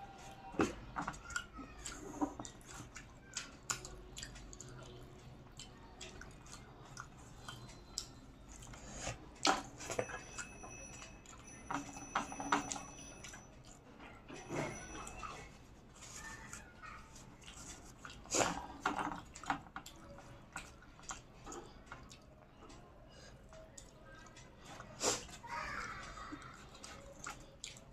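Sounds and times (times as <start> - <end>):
chewing and mouth smacks: 1.2 - 9.4, 16.2 - 25.4, 26.4 - 27.9.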